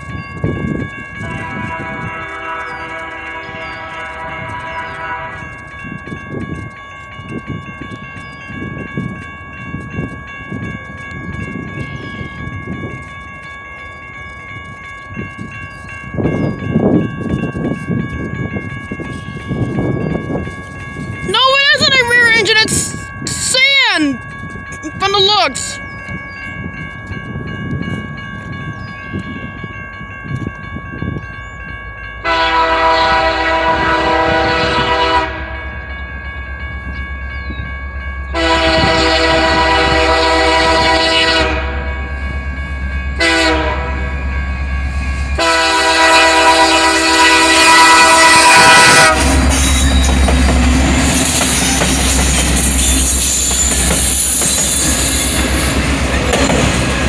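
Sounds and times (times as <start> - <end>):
wheels clattering on rails: 0.0 - 23.2, 42.3 - 57.0
train rumbling past: 0.0 - 25.0, 25.7 - 57.0
locomotive horn blasts: 1.2 - 5.5, 32.2 - 35.7, 38.3 - 42.0, 43.2 - 44.2, 45.4 - 49.5.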